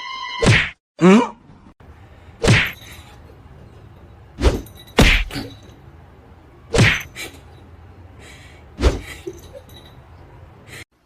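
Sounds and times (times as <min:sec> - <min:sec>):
sharp whacks: 0:00.4 - 0:00.8, 0:02.4 - 0:02.8, 0:04.4 - 0:05.5, 0:06.7 - 0:07.1, 0:08.8 - 0:09.1.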